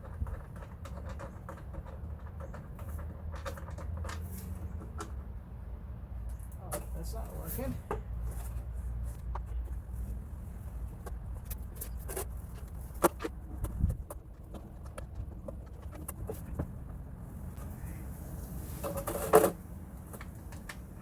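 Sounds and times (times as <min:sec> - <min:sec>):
wind rumble on microphone: 0:09.2 - 0:18.6.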